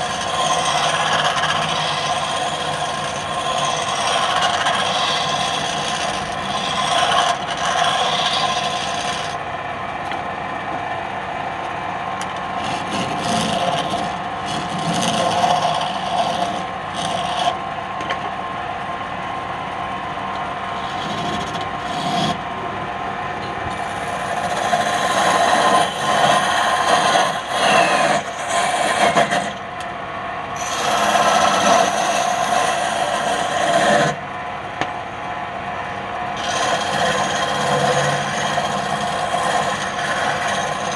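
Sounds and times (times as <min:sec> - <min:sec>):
wood scraping on lathe: 0:00.0 - 0:09.4, 0:12.2 - 0:18.3, 0:20.7 - 0:22.6, 0:23.7 - 0:29.7, 0:30.6 - 0:34.2, 0:36.3 - 0:40.9
lathe motor hum: 0:00.0 - 0:40.9.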